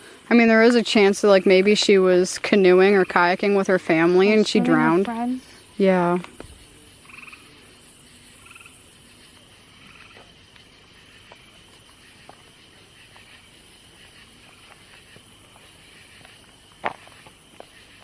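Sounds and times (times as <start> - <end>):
faint high background hum: 0.0 - 13.9
frogs croaking: 0.0 - 18.0.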